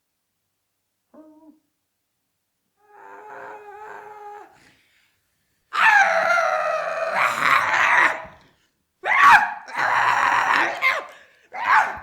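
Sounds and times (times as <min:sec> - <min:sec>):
rough drawn-out vocal cry: 0:02.8 - 0:04.6, 0:05.7 - 0:08.4, 0:09.0 - 0:12.0.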